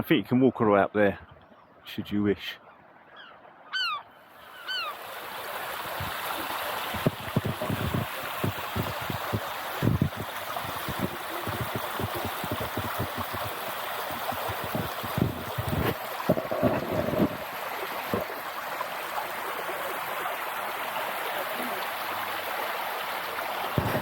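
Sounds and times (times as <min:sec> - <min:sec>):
seagull calls: 0:02.6 - 0:05.0
wind buffeting microphone: 0:05.8 - 0:18.4, 0:23.8 - 0:24.0
coastal wind rushing: 0:06.9 - 0:18.3.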